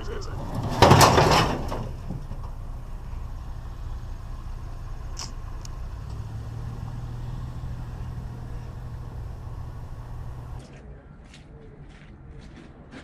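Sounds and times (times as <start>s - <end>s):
vehicle engine droning: 0.0s - 10.6s
sharp click: 5.1s - 5.8s.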